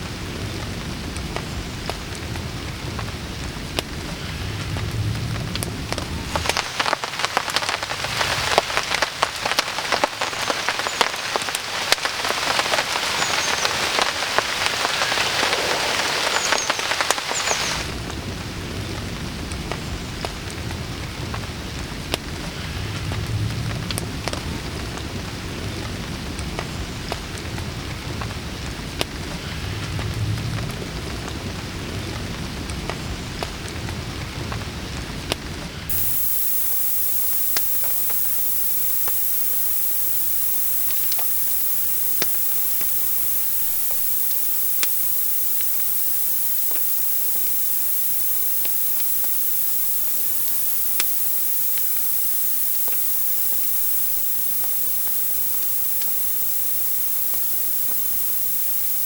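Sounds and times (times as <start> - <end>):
steady hiss: 12.3 - 18.1, 35.9 - 59.0.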